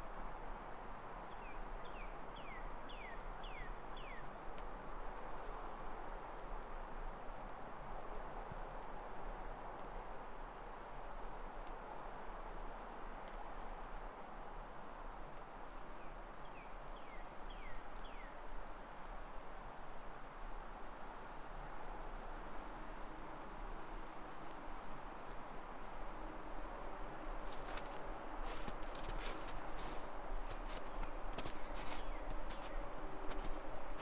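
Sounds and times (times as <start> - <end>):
footsteps crunching through wet snow: 27.0 - 34.0
small birds chirping: 27.1 - 34.0.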